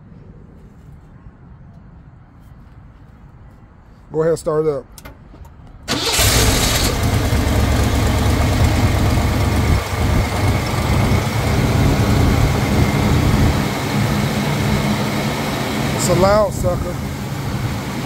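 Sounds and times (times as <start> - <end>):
car engine starting and idling: 5.8 - 18.0.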